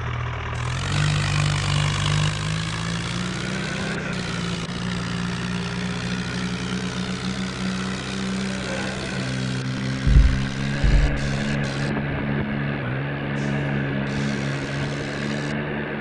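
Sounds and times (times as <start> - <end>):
tractor diesel engine running: 0.0 - 16.0
heavy low thump: 10.0 - 12.0.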